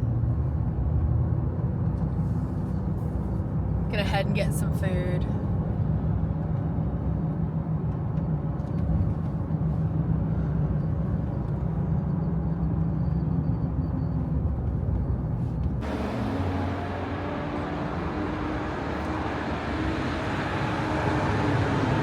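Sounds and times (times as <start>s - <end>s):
car engine rumble: 0.0s - 22.0s
road noise: 14.2s - 22.0s.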